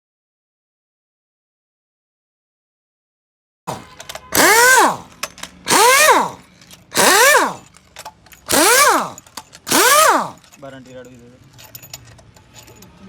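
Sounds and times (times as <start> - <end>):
power tool bursts: 3.7 - 7.8, 8.5 - 10.4.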